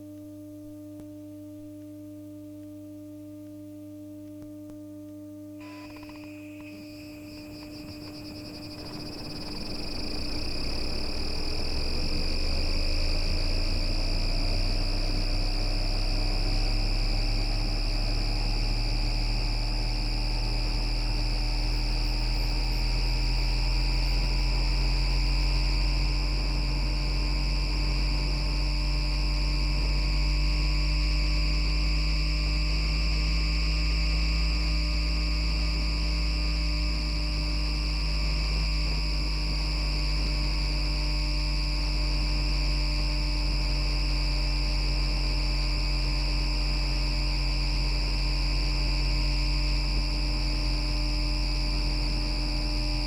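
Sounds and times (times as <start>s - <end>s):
high inverter tones: 5.6s - 14.0s
tram motor whine: 5.6s - 30.8s
low running rumble: 7.7s - 17.9s.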